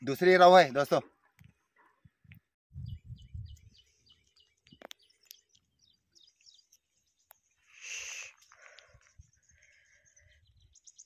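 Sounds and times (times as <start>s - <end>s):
small bird chirping: 2.7s - 11.0s.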